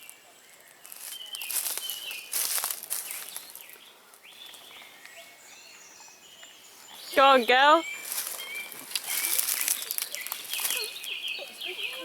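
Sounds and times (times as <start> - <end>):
footsteps crunching dry leaves: 0.0 - 5.0, 7.8 - 12.0
small birds chirping: 0.0 - 12.0.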